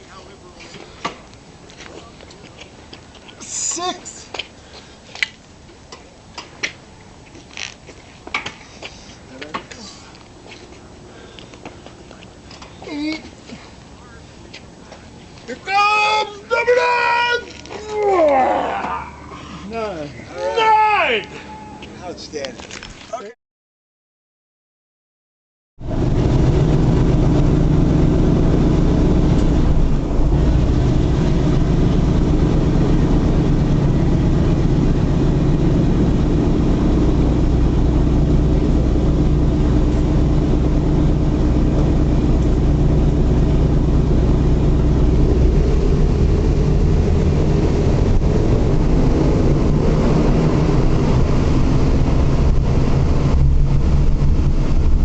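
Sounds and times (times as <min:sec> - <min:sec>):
radial aircraft engines droning: 0:00.0 - 0:22.7, 0:25.9 - 0:55.0.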